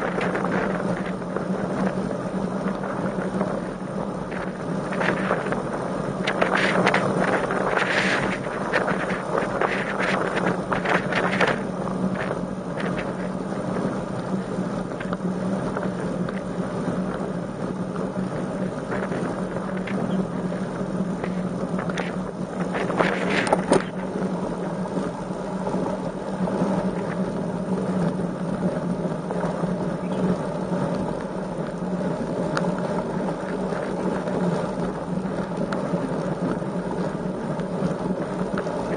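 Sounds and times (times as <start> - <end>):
crackle bursts: 0.0 - 38.9
steady low hum: 0.0 - 38.9
wind buffeting microphone: 0.0 - 38.9.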